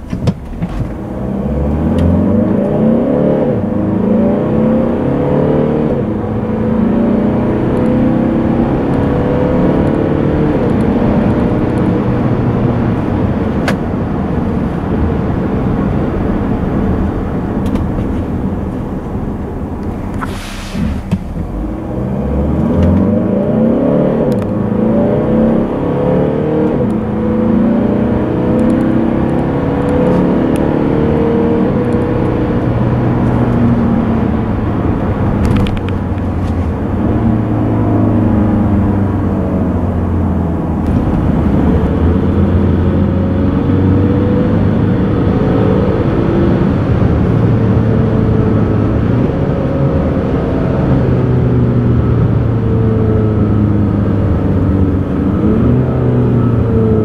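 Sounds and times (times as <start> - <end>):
car engine accelerating: 0.0 - 57.0
short hiss: 20.2 - 21.3.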